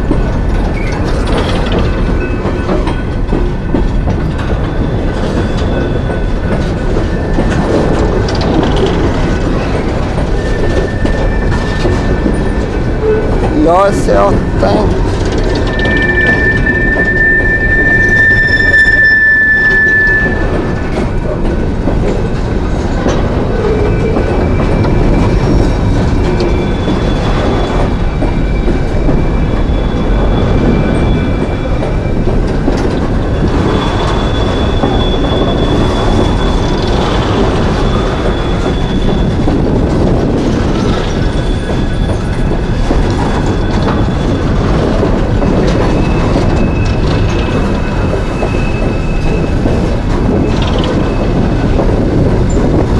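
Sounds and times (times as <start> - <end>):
freight train wheels rumbling: 0.0 - 52.9
faint wheel squeals: 14.5 - 21.4, 23.5 - 52.8.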